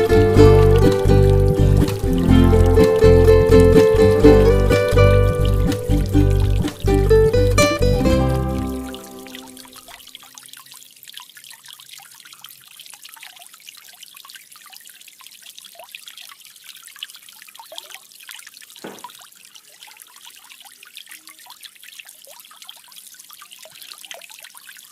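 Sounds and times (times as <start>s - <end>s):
background music: 0.0s - 9.8s
water drips and plinks: 0.0s - 24.9s
water trickling and splashing: 0.0s - 24.9s.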